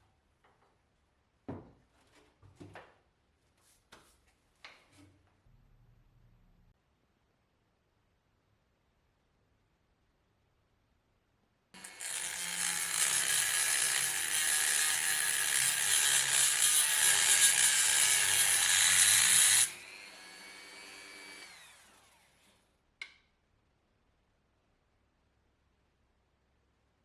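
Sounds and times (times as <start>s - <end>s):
power tool whine: 11.8s - 22.6s.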